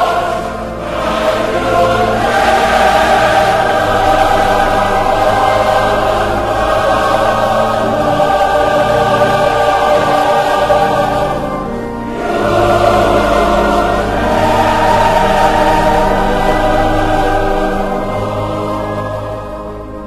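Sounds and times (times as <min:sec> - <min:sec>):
choir singing sustained chords: 0:00.0 - 0:20.0
instrumental backing: 0:00.0 - 0:20.0.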